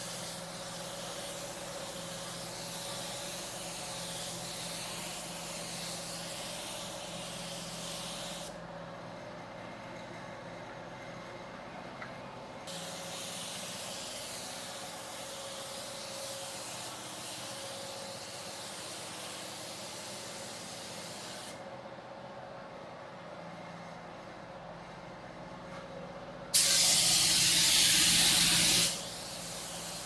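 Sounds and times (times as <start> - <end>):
paint spray hissing: 0.0 - 8.5, 12.7 - 21.6, 26.6 - 30.0.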